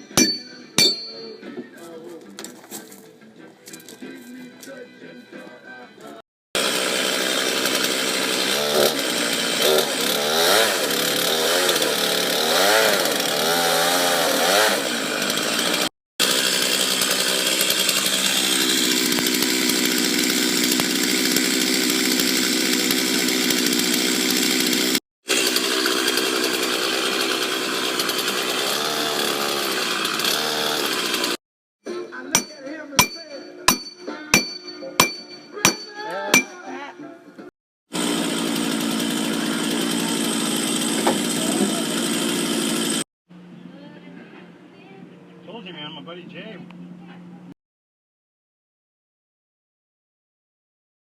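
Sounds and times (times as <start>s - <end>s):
chainsaw cutting wood: 0.0s - 1.4s, 6.6s - 31.4s, 32.4s - 36.6s, 37.9s - 43.1s.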